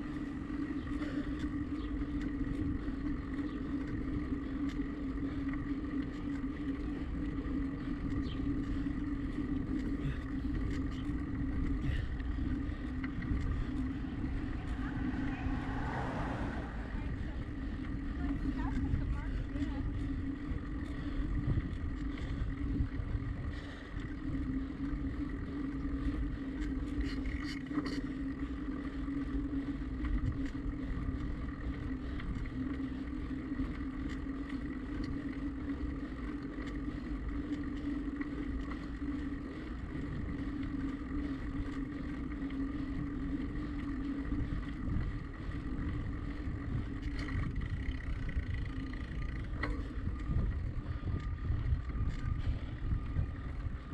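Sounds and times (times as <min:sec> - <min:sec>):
bicycle tyres rolling: 0:00.0 - 0:53.9
steady hum: 0:00.0 - 0:53.9
wind on microphone: 0:44.3 - 0:53.9.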